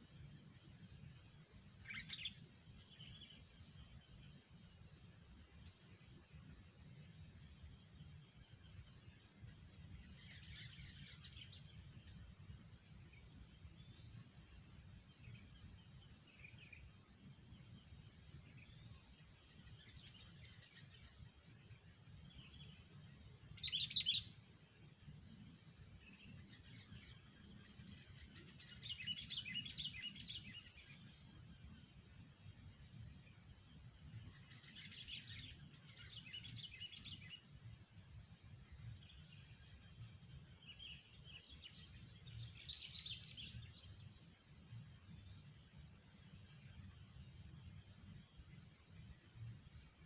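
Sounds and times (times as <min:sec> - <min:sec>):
birds chirping: 0:01.8 - 0:03.4, 0:10.0 - 0:11.9, 0:23.6 - 0:24.4, 0:26.0 - 0:31.1, 0:34.3 - 0:37.5, 0:40.6 - 0:44.2.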